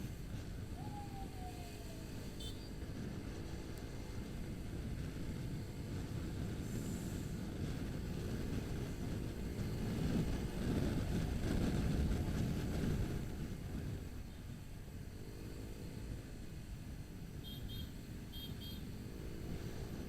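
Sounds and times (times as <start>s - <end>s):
wind buffeting microphone: 0.0s - 14.2s
motorcycle engine rumbling: 0.0s - 20.0s.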